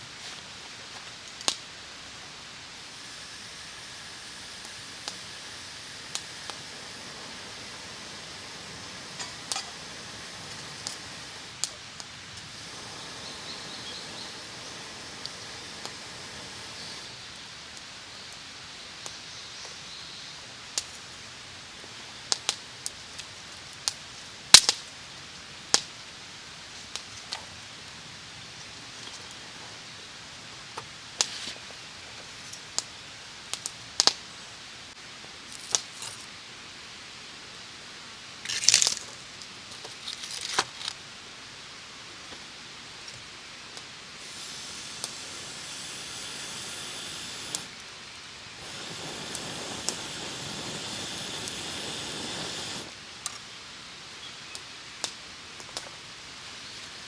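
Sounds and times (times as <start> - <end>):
low fire hiss: 0.0 - 57.0
campfire pops and snaps: 1.2 - 1.7, 2.8 - 17.9, 22.3 - 24.9, 33.5 - 34.2, 38.5 - 39.2, 43.1 - 53.5.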